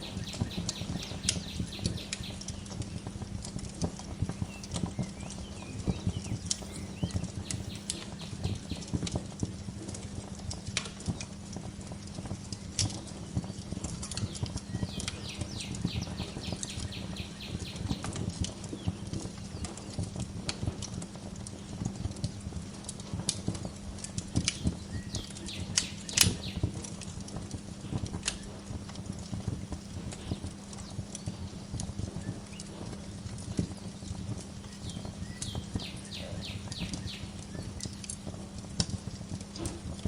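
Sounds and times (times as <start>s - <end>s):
bird chirping: 0.0s - 2.8s, 4.2s - 9.0s, 14.2s - 18.1s, 34.6s - 38.0s
low steady hum: 0.0s - 40.0s
wood fire crackling and popping: 0.0s - 40.0s.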